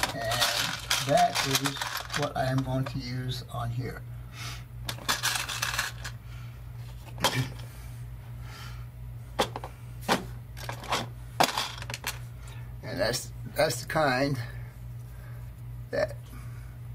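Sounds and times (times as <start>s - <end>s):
clicks and rustles of wire handling: 0.0s - 3.1s
steady low hum: 0.0s - 16.9s.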